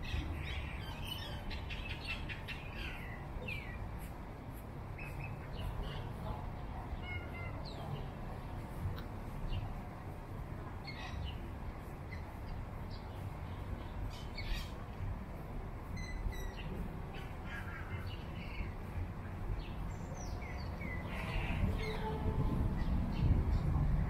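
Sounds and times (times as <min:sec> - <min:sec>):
small birds chirping: 0:00.0 - 0:09.8, 0:10.8 - 0:15.2, 0:15.8 - 0:22.2
steady low rumble: 0:07.8 - 0:24.0.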